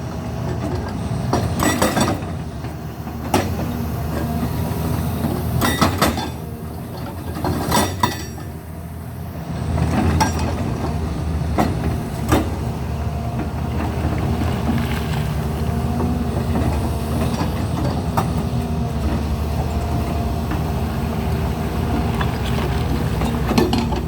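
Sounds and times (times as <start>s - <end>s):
heavy machinery rumbling: 0.0s - 24.0s
metallic clanks and knocks: 23.2s - 24.0s.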